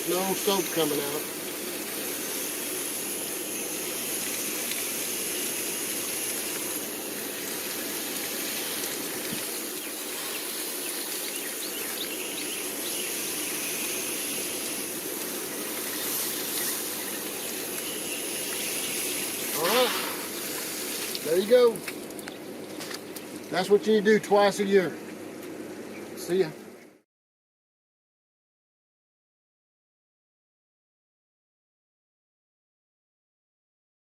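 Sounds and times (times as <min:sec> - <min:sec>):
hose nozzle spraying water: 0:00.0 - 0:22.2.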